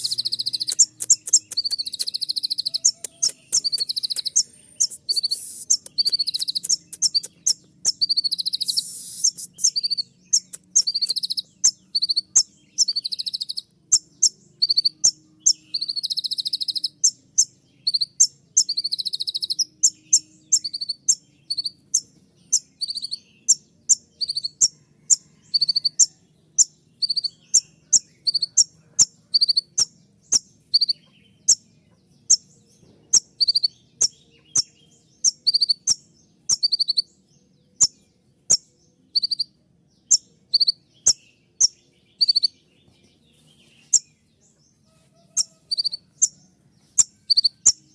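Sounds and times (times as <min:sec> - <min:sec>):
bird buzzy trills: 0:00.0 - 0:26.0
bird singing piercing high chirps: 0:00.0 - 0:31.6, 0:33.1 - 0:37.2, 0:37.8 - 0:42.6.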